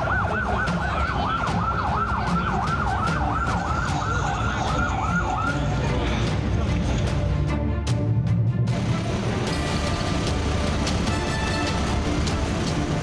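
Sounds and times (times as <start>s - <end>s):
fire engine siren yelping: 0.0s - 5.9s.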